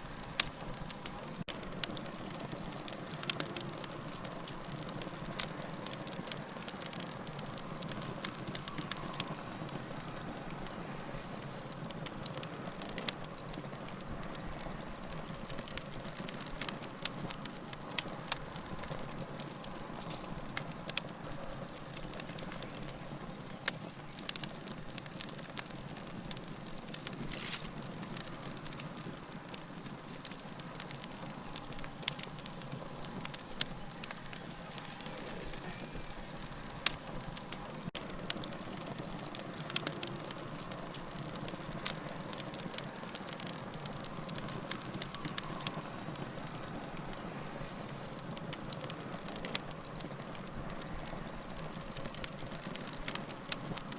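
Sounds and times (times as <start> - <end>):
fire crackling and popping: 0.0 - 53.9.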